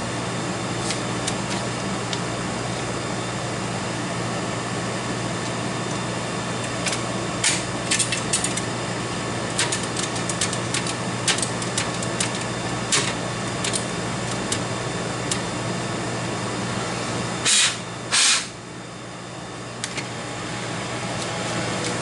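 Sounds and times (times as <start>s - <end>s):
electrical hum and fan noise: 0.0s - 22.0s
short loud noisy bursts: 17.4s - 18.5s.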